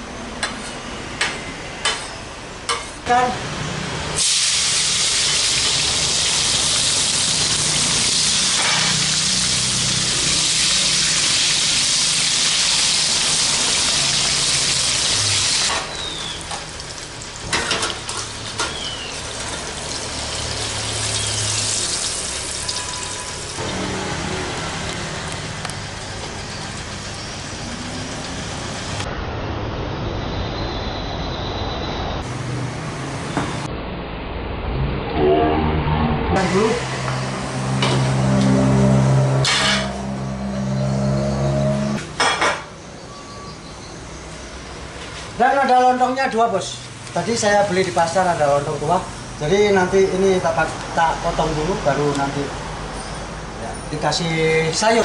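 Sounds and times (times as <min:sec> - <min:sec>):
vegetables sizzling in hot oil: 0:04.2 - 0:23.9.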